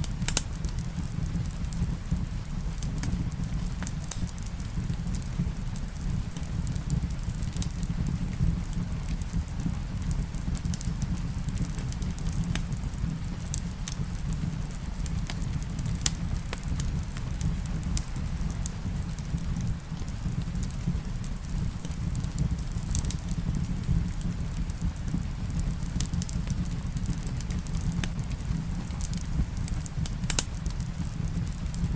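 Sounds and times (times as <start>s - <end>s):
rain: 0.0s - 31.9s
wood fire crackling: 0.0s - 31.9s.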